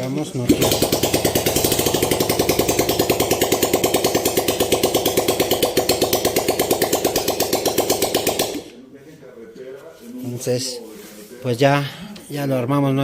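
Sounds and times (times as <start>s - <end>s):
motorcycle engine idling: 0.4s - 8.8s.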